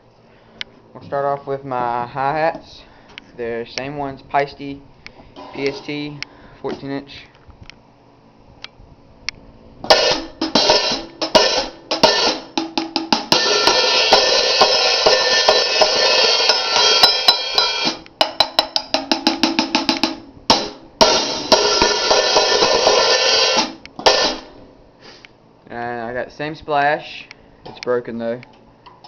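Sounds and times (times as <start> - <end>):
hi-hat cymbals: 9.9 - 18.0, 18.6 - 25.2.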